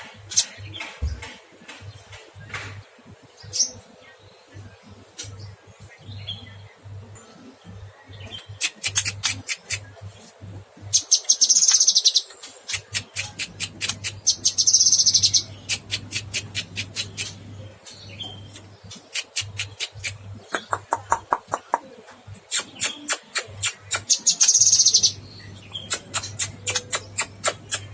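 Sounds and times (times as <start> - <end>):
steady low hum: 0.0 - 27.9
bird buzzy trills: 8.3 - 27.9
bird chipping: 10.9 - 27.9.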